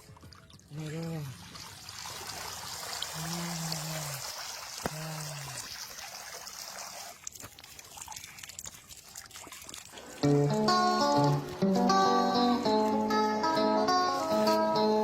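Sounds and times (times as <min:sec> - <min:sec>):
water trickling and splashing: 0:00.0 - 0:13.2
strummed guitar music: 0:10.2 - 0:15.0.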